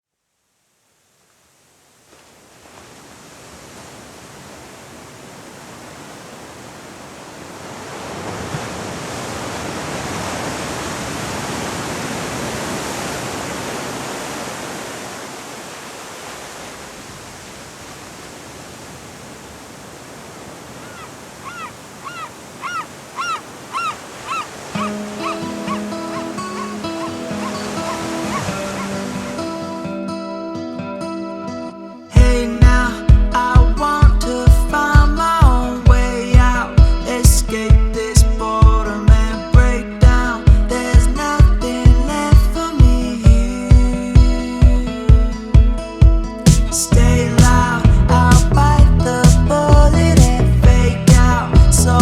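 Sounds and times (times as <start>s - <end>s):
ocean surf breaking on shore: 1.5s - 30.4s
short high calls: 20.7s - 29.4s.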